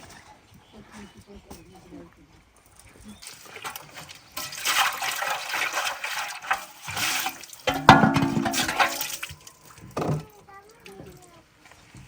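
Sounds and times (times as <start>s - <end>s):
water pouring and splashing: 3.2s - 12.0s.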